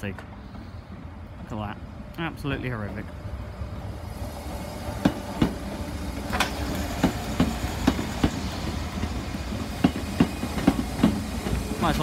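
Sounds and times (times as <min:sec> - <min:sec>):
train low rumble: 0:00.0 - 0:12.0
train wheels clacking over joints: 0:04.5 - 0:12.0.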